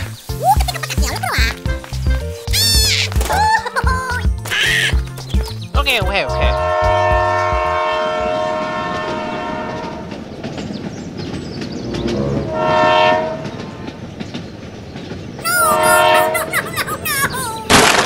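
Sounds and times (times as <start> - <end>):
steam whistle toot: 12.5 - 13.4, 15.6 - 16.4
toy train chugging: 15.4 - 17.6.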